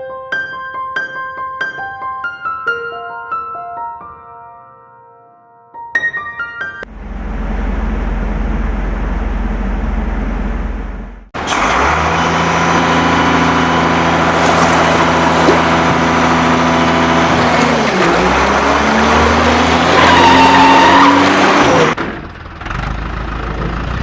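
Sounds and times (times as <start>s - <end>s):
engine low rumble: 6.9s - 20.0s
engine starting and humming: 7.1s - 24.0s.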